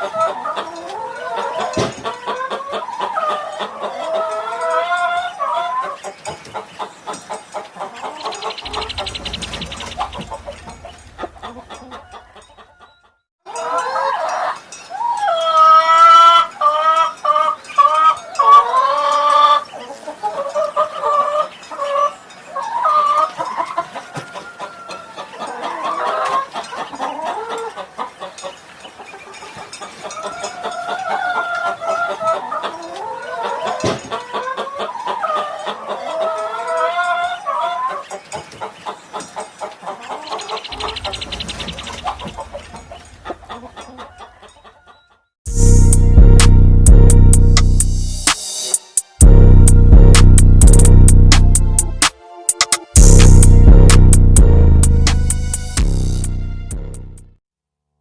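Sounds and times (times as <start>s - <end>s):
chickens clucking: 0.0s - 45.3s, 51.3s - 56.4s
rooster crowing: 11.3s - 15.2s.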